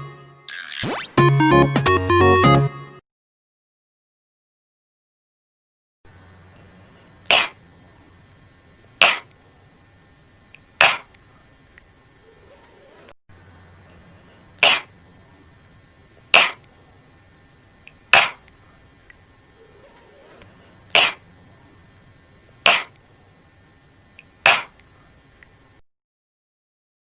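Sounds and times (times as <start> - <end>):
person making breathy k sounds: 6.8 - 7.6, 9.0 - 9.3, 10.8 - 11.2, 13.9 - 14.9, 16.3 - 16.7, 18.1 - 18.5, 19.9 - 21.2, 22.6 - 23.0, 24.4 - 25.2.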